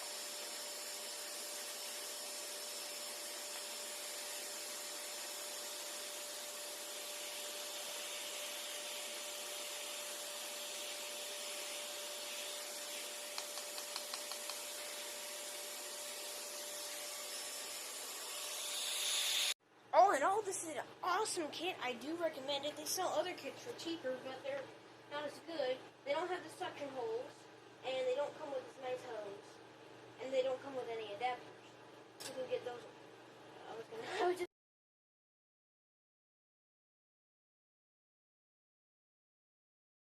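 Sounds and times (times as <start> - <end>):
vacuum cleaner running: 0.0 - 19.6.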